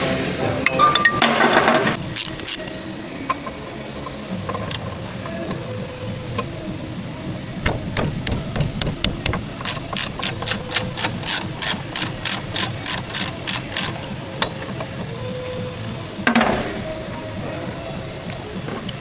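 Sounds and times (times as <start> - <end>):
hammer striking metal: 7.6 - 13.2.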